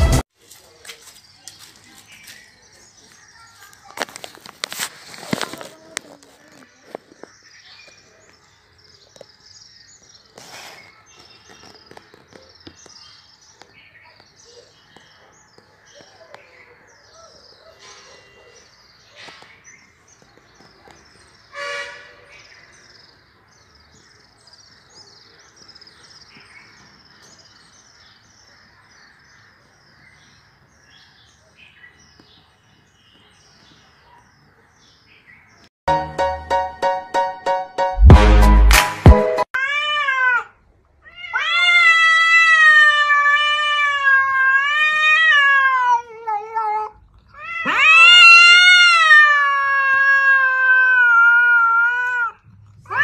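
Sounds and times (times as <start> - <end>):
small birds chirping: 0.6 - 35.7.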